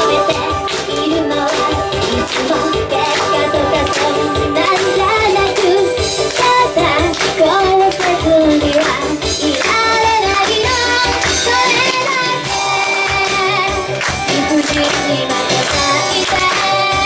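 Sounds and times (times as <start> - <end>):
backing music with steady beat: 0.0 - 17.0
woman singing pop song: 0.0 - 17.0.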